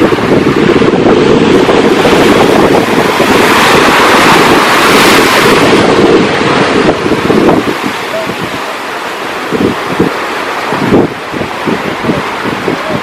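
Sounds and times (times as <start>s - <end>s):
ocean surf: 0.0s - 13.0s
wind buffeting microphone: 0.0s - 13.0s.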